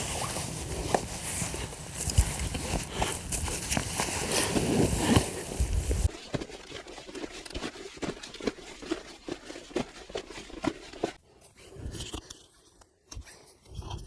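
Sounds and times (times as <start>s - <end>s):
dry leaves and twigs crackling: 0.0s - 6.1s
loud rustling: 0.0s - 6.1s.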